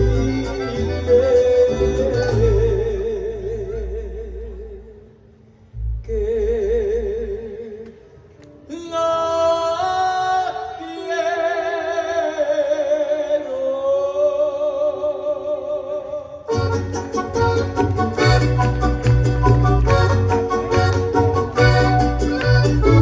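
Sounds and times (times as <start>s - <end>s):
band strumming rhythmically: 0.0s - 2.6s, 16.5s - 23.0s.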